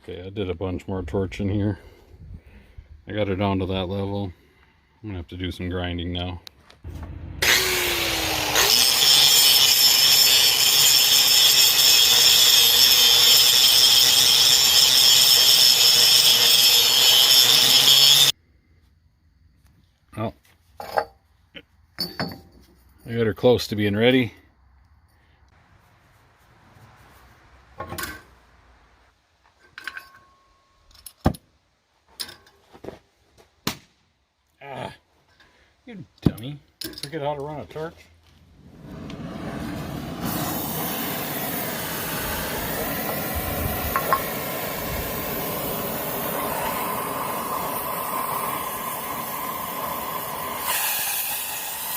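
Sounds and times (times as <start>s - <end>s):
angle grinder grinding steel: 7.0s - 18.3s, 38.8s - 51.9s
torch flame popping: 38.6s - 50.8s.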